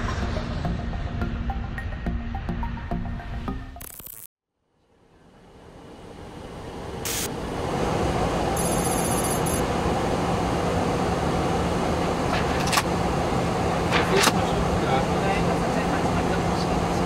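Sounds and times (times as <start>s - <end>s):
engine hum: 4.8s - 17.0s
airflow rush: 5.5s - 17.0s.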